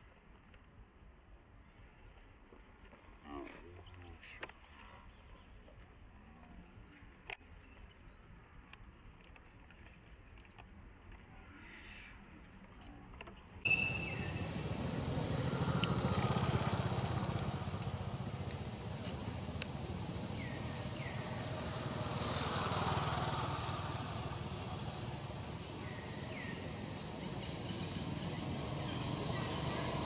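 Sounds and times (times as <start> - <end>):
short high falling chirps: 13.7 - 14.5
small engine running: 13.7 - 30.0.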